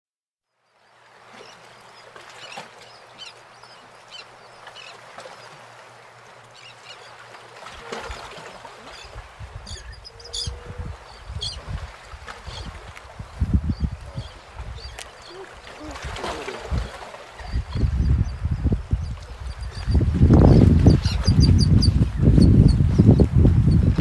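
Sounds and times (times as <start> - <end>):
birds chirping and calling: 8.9 - 11.8, 16.7 - 23.9
wind buffeting microphone: 9.0 - 24.0.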